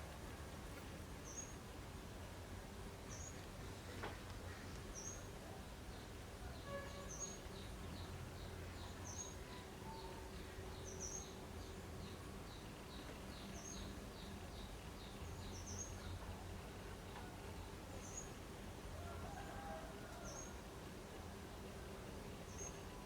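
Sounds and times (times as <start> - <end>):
small birds chirping: 7.0 - 16.3.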